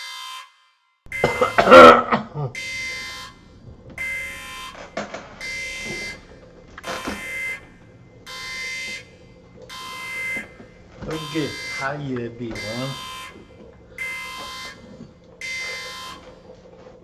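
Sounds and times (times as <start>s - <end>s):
electronic buzzer beep: 1.1s - 16.4s
person clearing throat: 1.3s - 2.6s.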